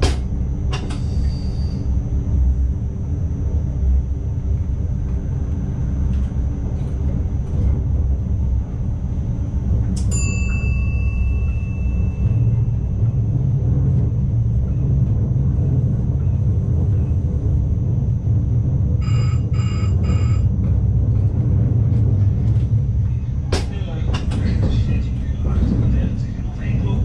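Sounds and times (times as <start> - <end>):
train running rumble: 0.0 - 27.0
bell-like chime: 10.1 - 12.5
short electronic beeps: 19.0 - 20.5.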